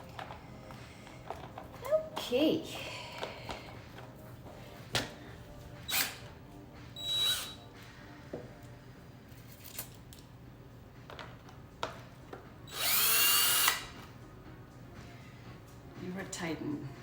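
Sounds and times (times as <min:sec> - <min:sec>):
power drill running: 0:05.8 - 0:06.3, 0:07.0 - 0:07.6, 0:12.7 - 0:14.0.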